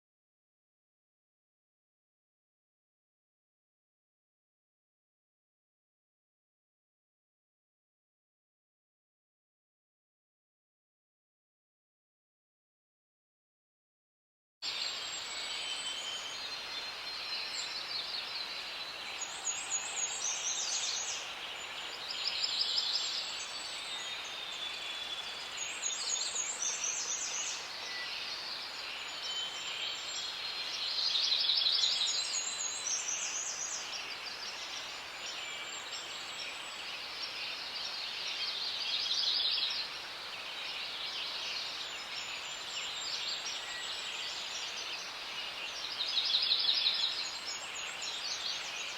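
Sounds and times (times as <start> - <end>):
birds singing: 14.7 - 48.9.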